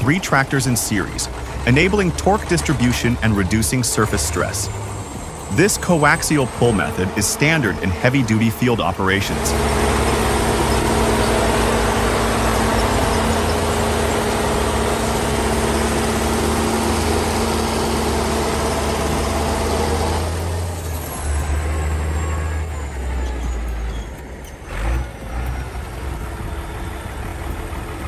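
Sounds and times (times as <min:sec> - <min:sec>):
tractor diesel engines droning: 0:00.0 - 0:28.0.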